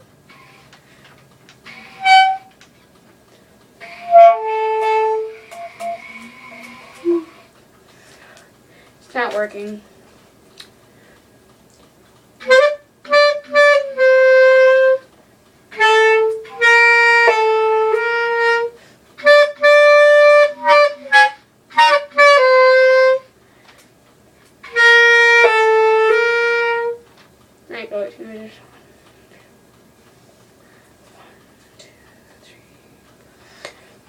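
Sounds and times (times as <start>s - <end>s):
clarinet playing: 1.7s - 2.6s, 3.8s - 7.5s, 12.4s - 15.1s, 15.7s - 23.3s, 24.6s - 27.0s.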